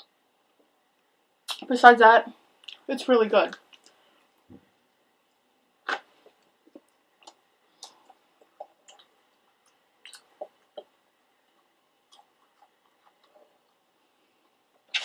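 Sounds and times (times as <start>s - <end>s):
wet mouth clicks: 5.8s - 10.9s.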